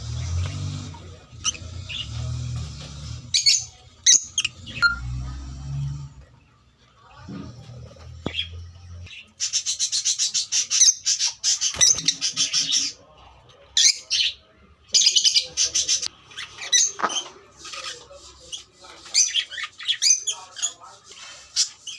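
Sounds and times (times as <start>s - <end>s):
lovebirds chattering chirps: 0.1s - 2.3s, 3.0s - 5.1s, 8.2s - 13.0s, 13.8s - 21.9s.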